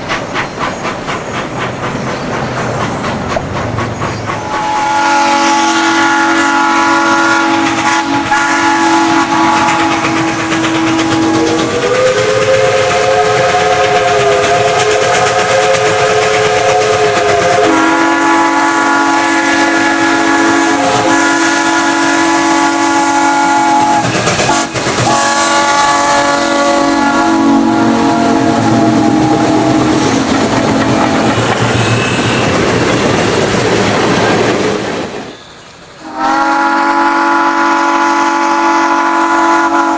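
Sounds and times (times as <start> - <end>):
train running on rails: 0.0 - 39.9
train whistle chords: 4.4 - 30.3, 36.0 - 39.9.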